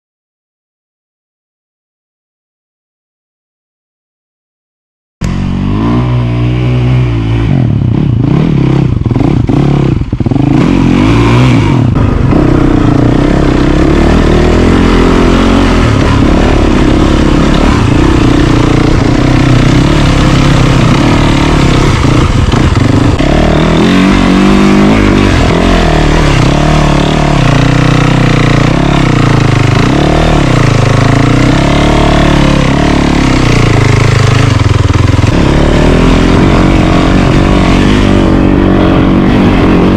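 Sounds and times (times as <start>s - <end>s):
dirt bike engine revving: 5.2s - 39.9s.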